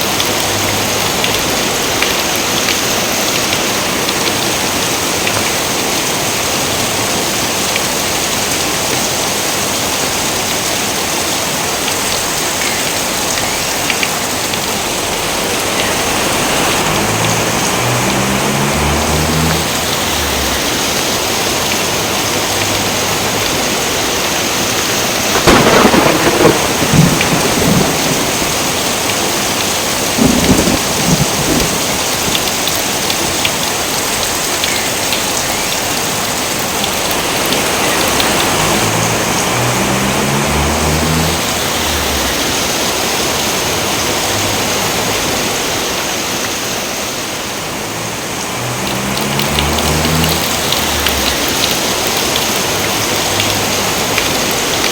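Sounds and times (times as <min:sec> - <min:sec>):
heavy rain falling: 0:00.0 - 0:54.9
thunder rumbling: 0:24.8 - 0:33.0, 0:36.9 - 0:45.5, 0:47.8 - 0:54.8.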